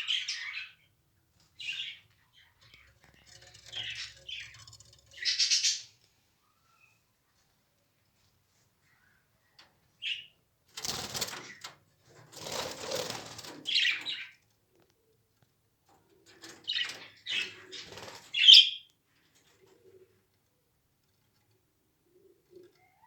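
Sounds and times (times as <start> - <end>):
birds flapping wings: 10.8 - 11.6, 12.4 - 13.6.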